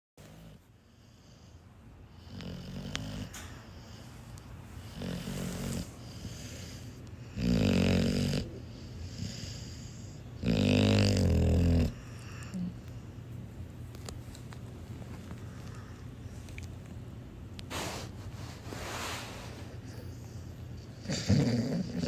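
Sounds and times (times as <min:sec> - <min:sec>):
dog snoring: 0:00.2 - 0:01.5, 0:02.1 - 0:04.0, 0:04.8 - 0:12.8, 0:18.7 - 0:22.0.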